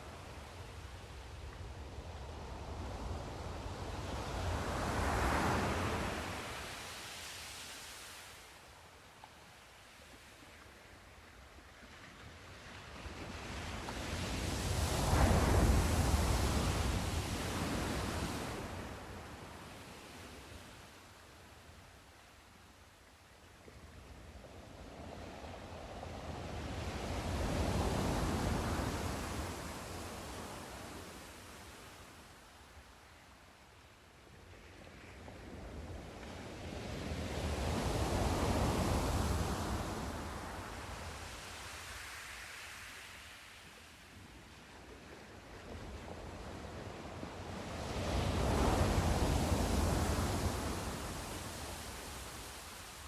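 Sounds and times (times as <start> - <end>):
sea waves rushing: 14.1 - 20.2, 47.0 - 53.0.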